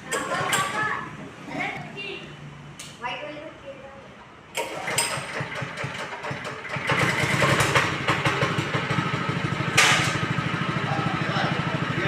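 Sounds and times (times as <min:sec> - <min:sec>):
power weeder engine running: 0:04.6 - 0:12.0.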